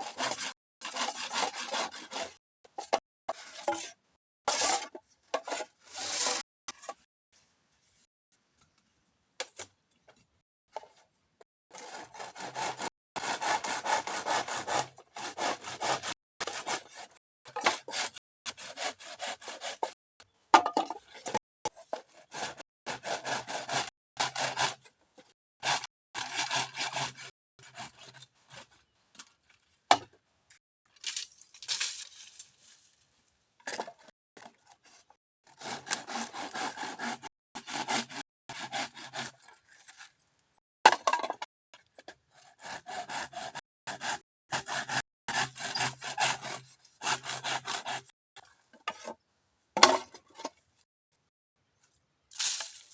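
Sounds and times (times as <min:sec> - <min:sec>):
hand saw cutting bamboo: 0:00.0 - 0:02.4, 0:04.5 - 0:06.9, 0:11.7 - 0:20.0, 0:21.7 - 0:24.9, 0:25.6 - 0:28.8, 0:35.4 - 0:40.1, 0:42.3 - 0:48.2.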